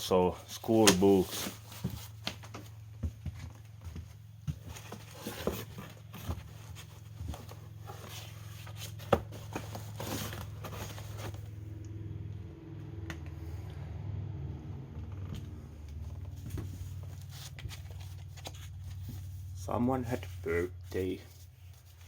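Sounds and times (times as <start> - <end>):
paper rustling: 4.6 - 11.5, 16.2 - 22.0.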